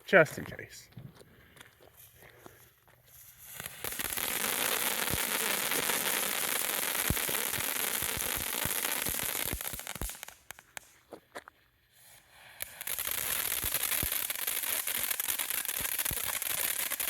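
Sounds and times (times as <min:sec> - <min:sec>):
firework fountain hissing: 0:03.1 - 0:10.9, 0:11.9 - 0:17.0
crackling pops: 0:03.2 - 0:11.3, 0:12.5 - 0:17.0.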